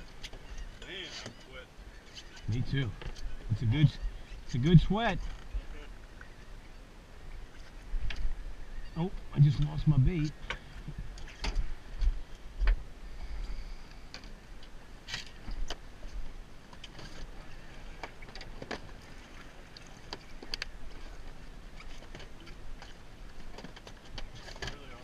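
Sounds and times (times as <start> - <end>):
boat low rumble: 0.0 - 25.0.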